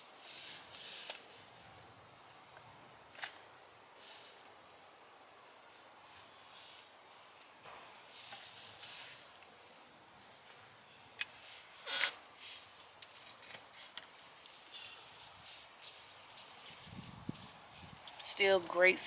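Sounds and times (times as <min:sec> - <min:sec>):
gloved hands rustling soil: 0:08.1 - 0:10.6, 0:11.3 - 0:19.0.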